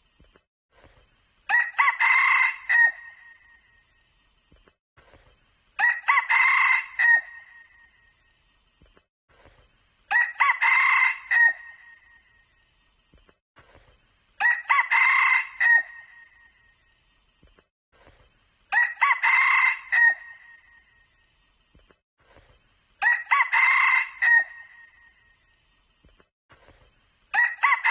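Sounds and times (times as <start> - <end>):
rooster crowing: 1.5 - 3.2, 5.8 - 7.6, 10.1 - 11.9, 14.4 - 16.2, 18.7 - 20.6, 23.0 - 24.9, 27.3 - 27.9.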